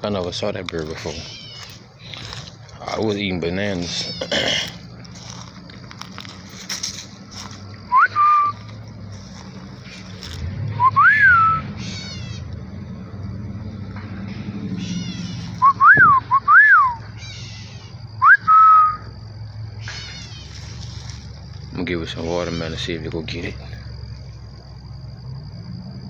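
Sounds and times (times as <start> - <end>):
bird trilling: 0.9 - 5.4, 7.8 - 12.5, 14.7 - 19.1, 19.8 - 21.4, 22.0 - 23.0
person whistling: 7.9 - 8.6, 10.8 - 11.6, 15.6 - 17.0, 18.2 - 19.0.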